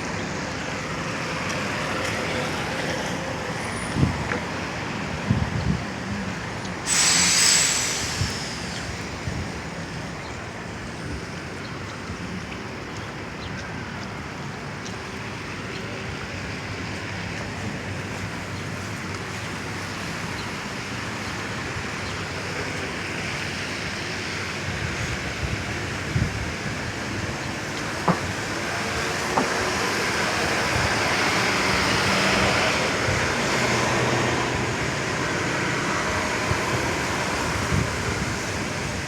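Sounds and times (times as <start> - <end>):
tyres on wet street: 0.0 - 39.0
rain: 6.0 - 39.0
sharp hiss: 6.8 - 9.8.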